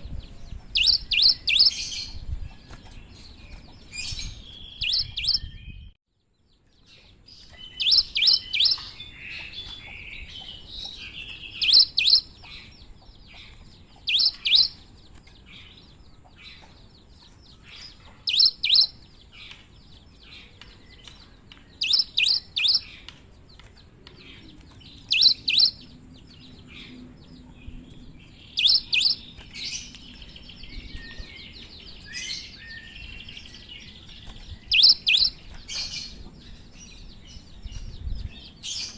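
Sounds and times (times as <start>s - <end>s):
bird singing sharp notes: 0.0s - 5.9s, 7.4s - 12.7s, 13.4s - 14.8s, 17.6s - 19.6s, 20.3s - 23.1s, 24.2s - 26.5s, 28.2s - 37.9s
bird chattering: 0.5s - 2.2s, 3.7s - 5.5s, 7.4s - 14.8s, 17.6s - 19.1s, 21.8s - 23.0s, 24.3s - 25.9s, 28.4s - 29.8s, 34.6s - 36.2s.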